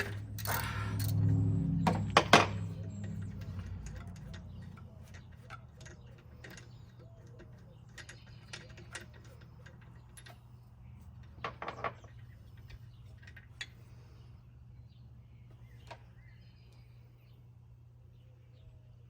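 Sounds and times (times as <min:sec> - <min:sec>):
ratchet clicking: 0:00.0 - 0:10.5.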